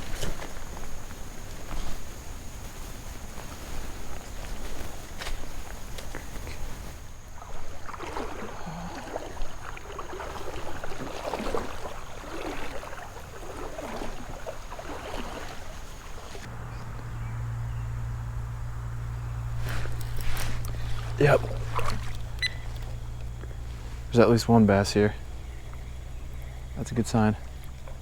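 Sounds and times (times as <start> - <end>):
water sloshing and splashing: 0.0 - 28.0
steady low hum: 14.4 - 28.0.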